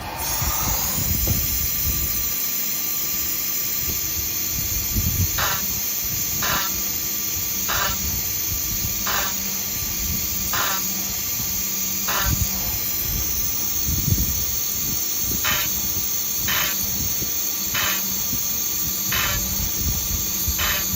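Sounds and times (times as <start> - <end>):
spindle whine and hiss: 0.0 - 20.9
rasping cutting bursts: 4.4 - 20.9.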